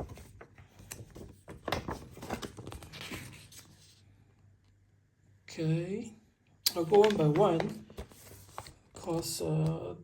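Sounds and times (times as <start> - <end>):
paper rustling: 0.0 - 4.0, 6.9 - 9.4.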